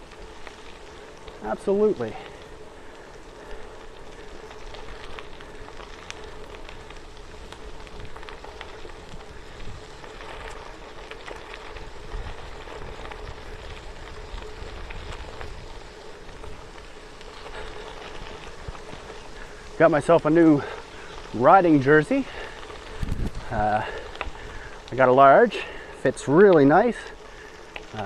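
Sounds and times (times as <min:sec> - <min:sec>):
bicycle tyres on gravel: 0:00.0 - 0:28.0
wind rumble on microphone: 0:05.0 - 0:19.8, 0:22.7 - 0:24.8.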